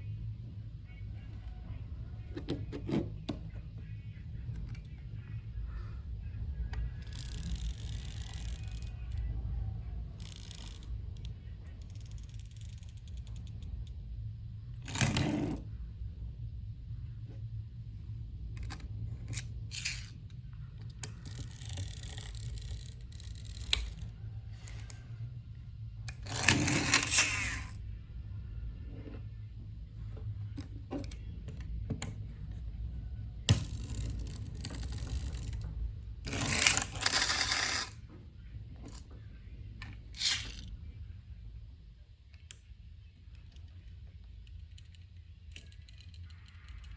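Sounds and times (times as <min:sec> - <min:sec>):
low hum: 0:00.0 - 0:46.9
plastic toys clattering: 0:19.4 - 0:20.2, 0:36.3 - 0:38.0, 0:40.1 - 0:40.6.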